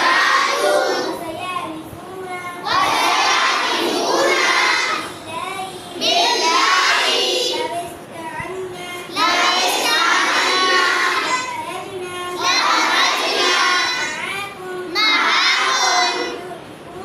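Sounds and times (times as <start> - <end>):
children singing in unison: 0.0 - 1.2, 2.6 - 5.2, 6.0 - 7.7, 9.1 - 11.5, 12.3 - 14.2, 14.9 - 16.4.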